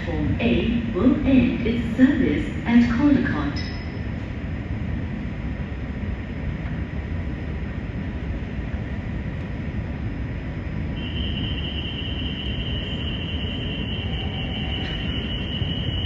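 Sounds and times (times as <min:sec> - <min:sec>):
metro train wheels rumbling: 0:00.0 - 0:16.0
high-pitched whine: 0:10.8 - 0:16.0.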